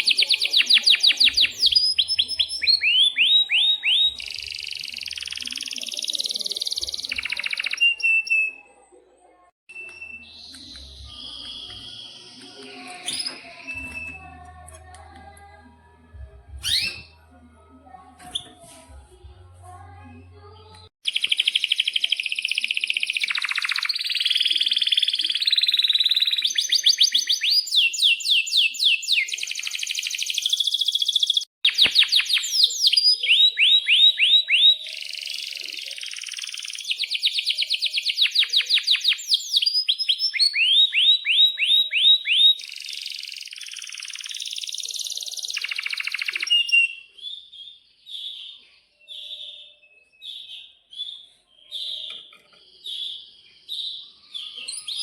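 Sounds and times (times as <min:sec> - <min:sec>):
canary singing trills: 0:00.0 - 0:08.8, 0:16.6 - 0:17.3, 0:21.0 - 0:55.0
canary chirps: 0:00.0 - 0:08.9, 0:16.6 - 0:17.3, 0:21.0 - 0:55.0.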